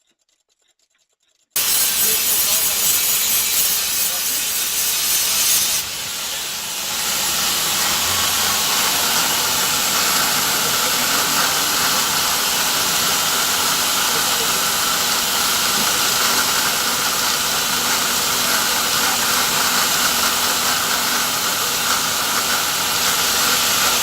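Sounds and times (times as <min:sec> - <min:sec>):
loud steady hissing: 0:01.6 - 0:24.0.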